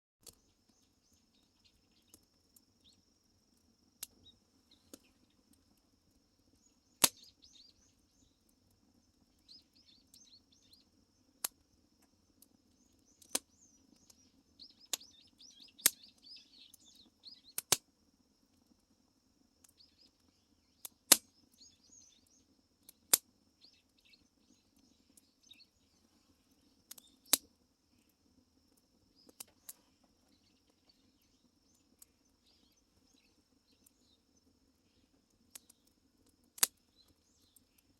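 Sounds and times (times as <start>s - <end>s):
faint high chirping: 0.2s - 3.1s, 6.3s - 11.0s, 12.1s - 17.6s, 19.6s - 36.0s
firewood crackling and popping: 0.2s - 37.9s.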